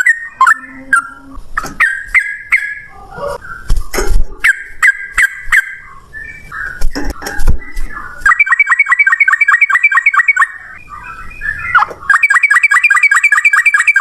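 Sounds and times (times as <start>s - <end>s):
bird chattering calls: 0.0s - 14.0s
bulbul singing rapid notes: 4.4s - 14.0s.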